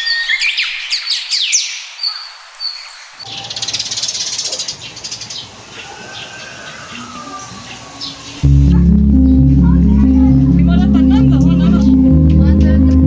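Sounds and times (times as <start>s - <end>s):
birds chirping and whistling: 0.0s - 8.4s
low rumble: 8.4s - 13.0s.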